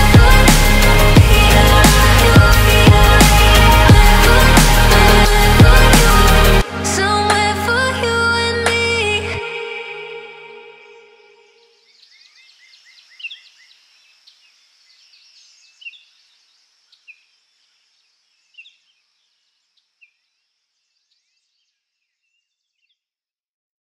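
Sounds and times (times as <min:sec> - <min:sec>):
birds chirping: 0:11.5 - 0:22.4.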